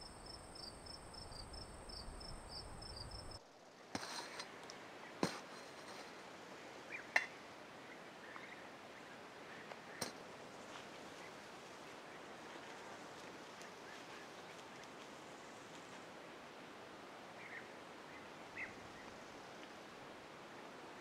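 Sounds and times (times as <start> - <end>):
crickets chirping: 0.0 - 3.8.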